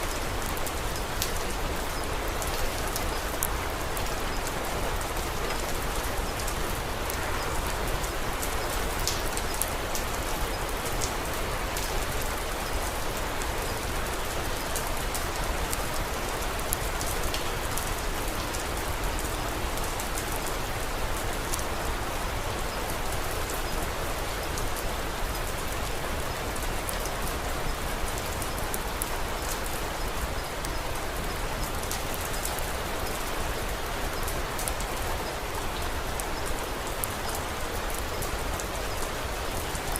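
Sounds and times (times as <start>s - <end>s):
wood fire crackling: 0.0s - 21.6s
steady rain falling: 0.0s - 39.9s.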